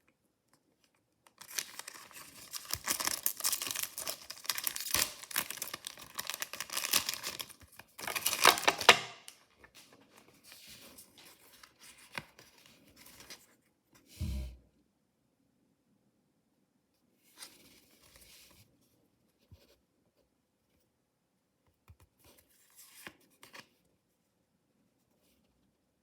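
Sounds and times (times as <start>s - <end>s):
packaging torn and crinkled: 1.3s - 9.4s.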